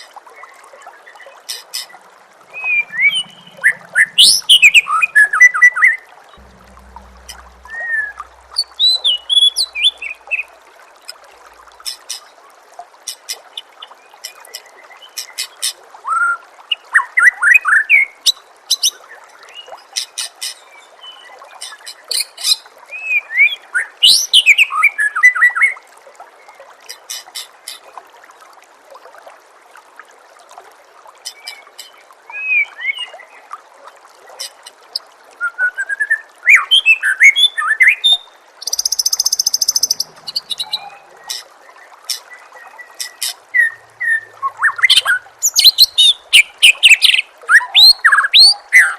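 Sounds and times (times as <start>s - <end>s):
running water trickling: 0.0s - 48.9s
bird singing varied song: 2.5s - 5.7s, 36.6s - 41.4s, 42.2s - 48.9s.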